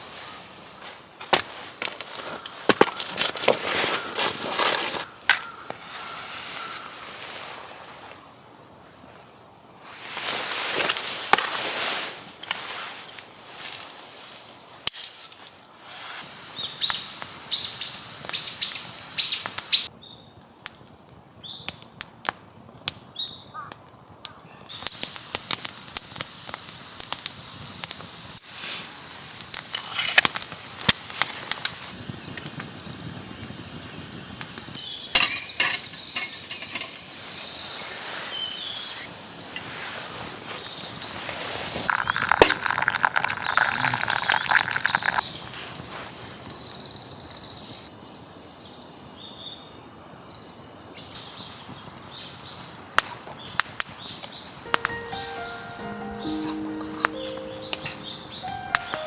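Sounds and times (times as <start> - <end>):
wood fire crackling: 24.7 - 32.6, 33.2 - 46.8
short high chirps: 54.7 - 59.0.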